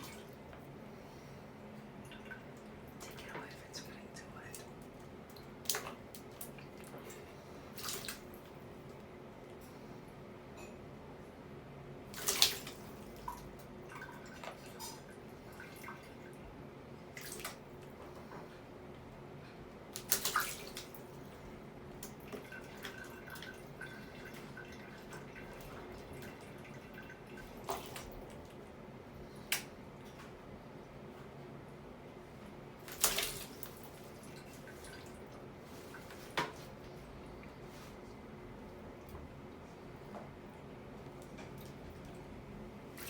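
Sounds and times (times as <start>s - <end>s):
bird splashing in water: 5.4s - 8.3s, 12.1s - 13.4s, 17.1s - 17.7s, 19.9s - 21.1s, 32.8s - 35.2s.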